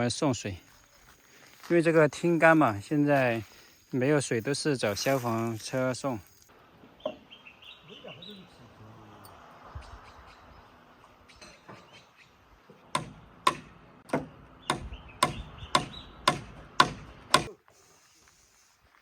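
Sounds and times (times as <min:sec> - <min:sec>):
hammer striking wood: 0:12.9 - 0:17.5.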